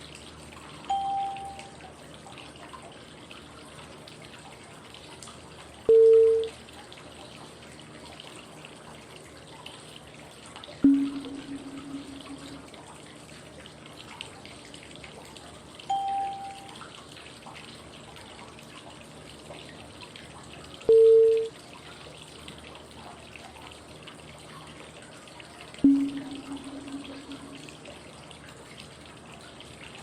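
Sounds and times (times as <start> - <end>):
flowing water: 0.0 - 30.0
pitched cue tones: 0.9 - 1.7, 5.9 - 6.5, 10.8 - 12.8, 15.9 - 16.8, 20.9 - 21.5, 25.8 - 27.8.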